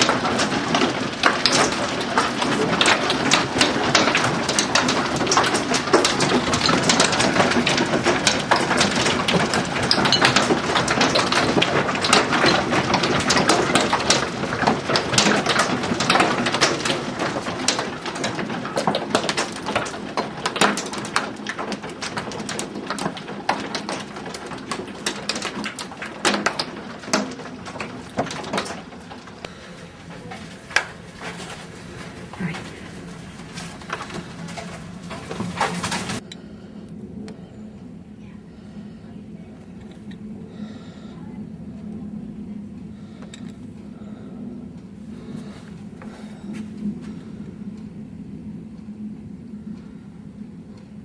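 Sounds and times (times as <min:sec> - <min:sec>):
hail falling hard: 0:00.0 - 0:36.2.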